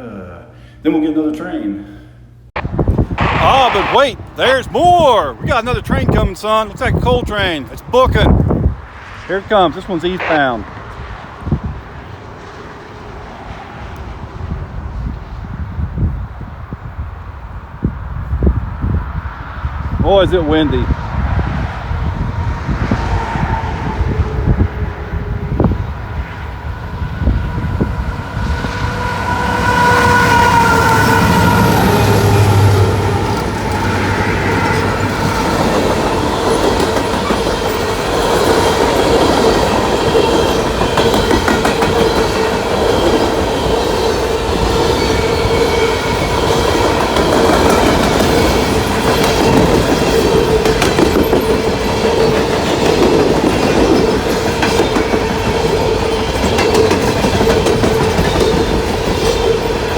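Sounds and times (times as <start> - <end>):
wheel whine: 21.1 - 59.9
train horn: 23.1 - 36.9
locomotive engine rumble: 23.4 - 54.4
wheels clattering over rail joints: 32.7 - 59.9.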